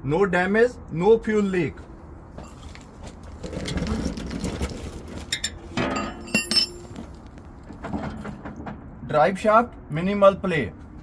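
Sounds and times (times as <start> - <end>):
handling noise: 2.4 - 8.9
light metallic clinks and knocks: 5.3 - 7.3.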